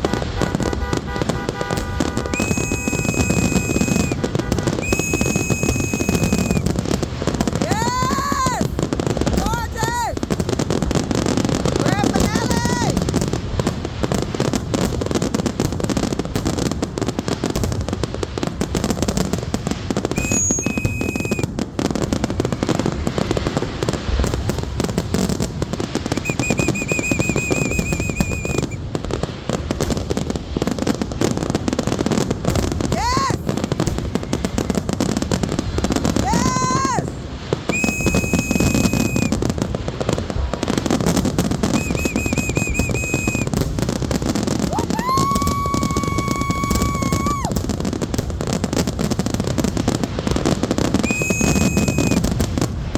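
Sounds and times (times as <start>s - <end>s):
rising firework whistles: 0.0s - 9.0s, 19.6s - 31.3s, 31.9s - 48.8s, 49.6s - 52.9s
fireworks crackling and popping: 0.0s - 52.9s
whistling fireworks shrieking: 0.0s - 52.9s.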